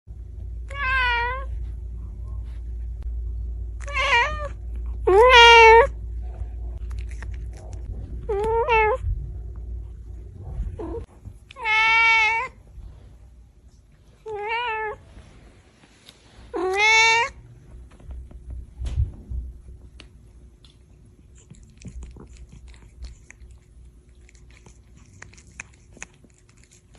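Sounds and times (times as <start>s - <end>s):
cat meowing: 3.8s - 5.9s, 11.6s - 12.6s, 16.5s - 17.4s.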